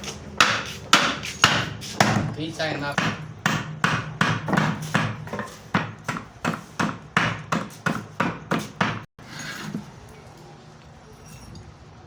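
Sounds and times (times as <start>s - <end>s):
hammer blows on wood: 0.0s - 2.3s.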